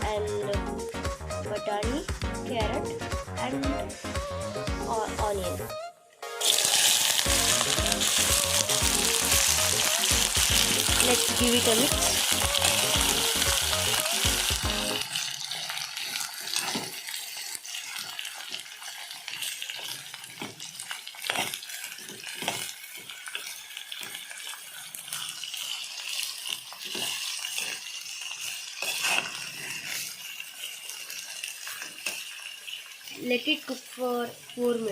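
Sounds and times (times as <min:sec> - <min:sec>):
vegetables sizzling in oil: 0:06.3 - 0:34.9
spatula scraping a pan: 0:06.4 - 0:33.2.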